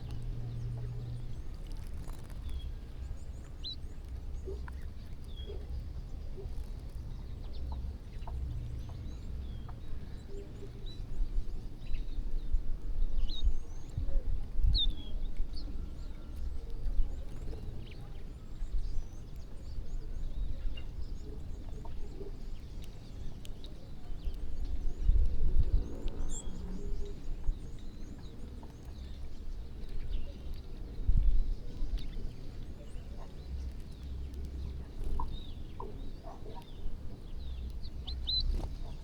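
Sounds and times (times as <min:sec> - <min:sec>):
birds chirping and calling: 0:24.3 - 0:39.0.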